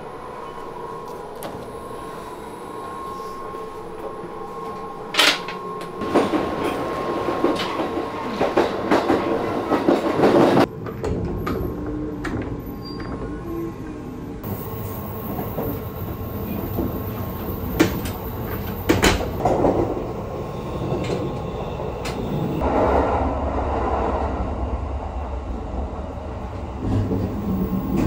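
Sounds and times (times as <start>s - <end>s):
train running noise inside carriage: 0.0s - 28.0s
wheels rattling on rails: 14.4s - 20.2s.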